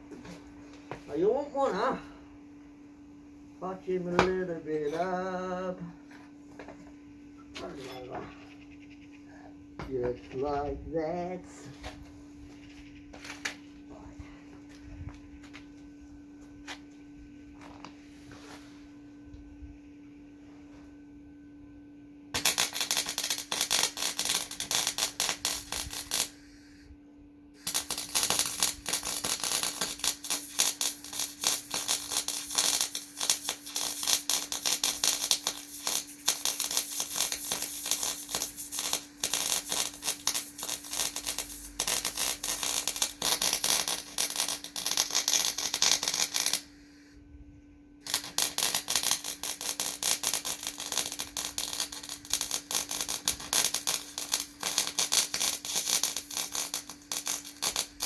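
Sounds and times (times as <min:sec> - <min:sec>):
steady low hum: 0:00.0 - 0:58.0
electric arc welding crackle: 0:22.4 - 0:26.5, 0:27.6 - 0:46.7, 0:48.0 - 0:58.0.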